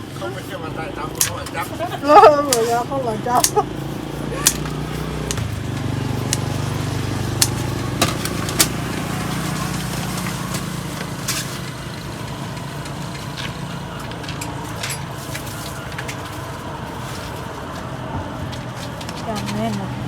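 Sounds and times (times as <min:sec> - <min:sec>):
small engine humming: 0:00.0 - 0:20.0
sharp clicks and knocks: 0:04.4 - 0:08.9.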